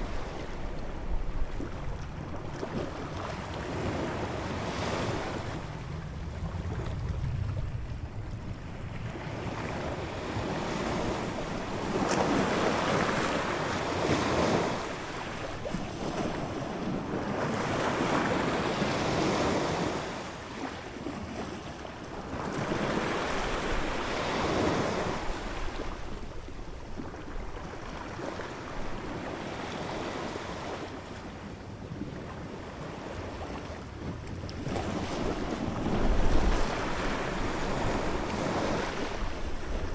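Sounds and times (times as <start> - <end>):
ocean waves breaking: 34.6 - 39.9.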